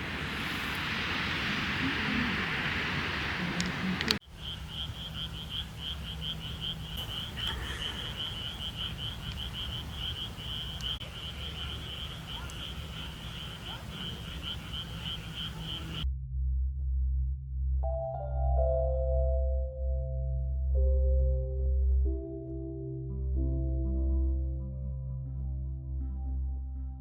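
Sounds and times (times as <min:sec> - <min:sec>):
loud rush of noise: 0:00.0 - 0:04.7.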